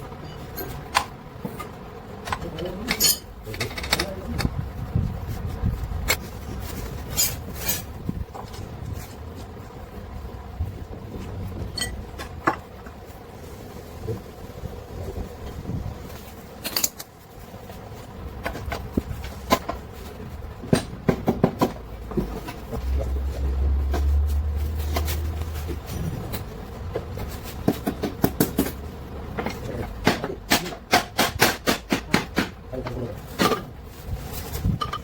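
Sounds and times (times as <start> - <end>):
hand tools clinking on metal: 2.3 - 4.3, 11.7 - 12.0
low rumble: 21.9 - 27.2.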